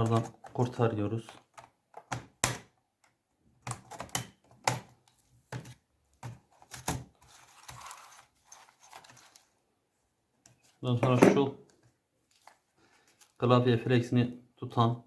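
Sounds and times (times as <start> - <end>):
soft scraping and handling noise: 5.0 - 13.6.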